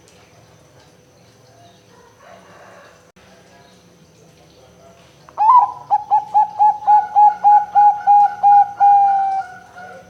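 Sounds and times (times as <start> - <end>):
dove cooing: 5.4 - 10.0.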